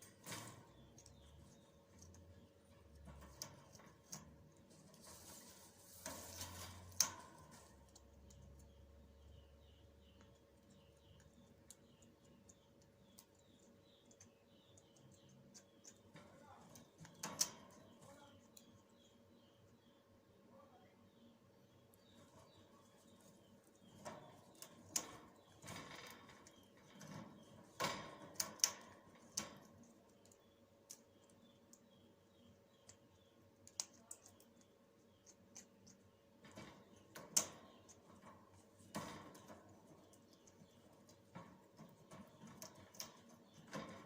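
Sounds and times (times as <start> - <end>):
sharp clicks and knocks: 10.2 - 18.0, 23.2 - 31.8.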